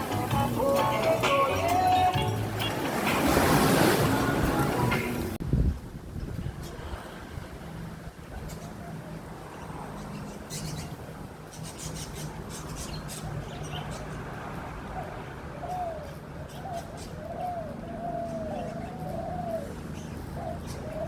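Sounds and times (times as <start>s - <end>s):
dove cooing: 15.0s - 21.0s.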